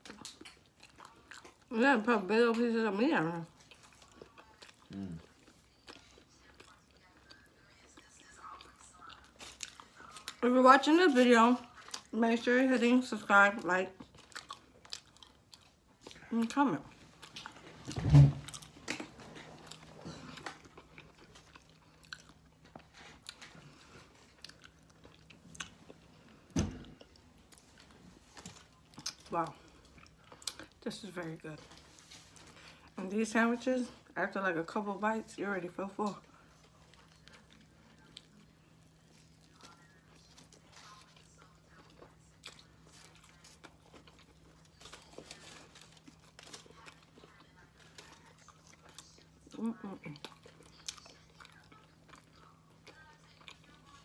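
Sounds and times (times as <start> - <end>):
person chewing: 0.0 - 1.7, 3.4 - 10.4, 11.1 - 12.1, 13.9 - 30.8, 36.2 - 54.0.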